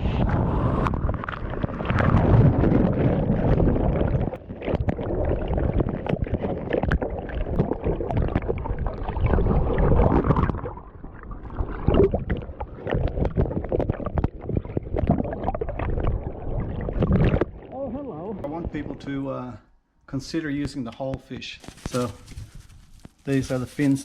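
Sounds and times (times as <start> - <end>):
wind rumbling on microphone: 0.0 - 17.6
surf churning and splashing: 1.0 - 13.7.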